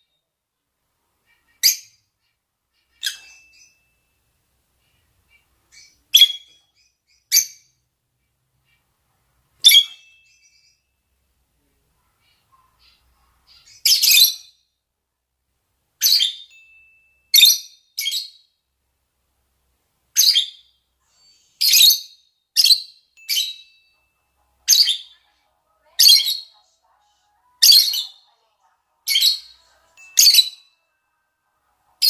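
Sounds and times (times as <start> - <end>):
lovebirds calling: 1.3 - 4.0, 4.9 - 7.8, 9.6 - 10.9, 12.2 - 14.7, 16.0 - 16.6, 20.1 - 30.8.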